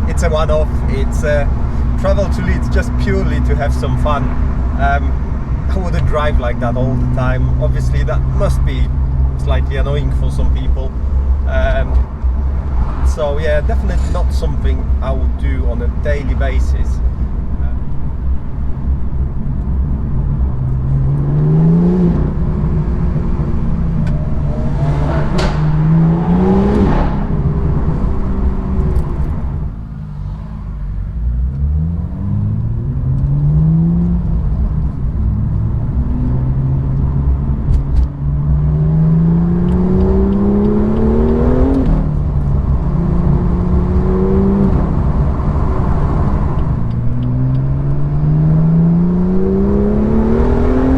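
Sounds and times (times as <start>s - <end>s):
exhaust cracks: 0.0s - 50.7s
car engine accelerating through gears: 18.7s - 50.9s.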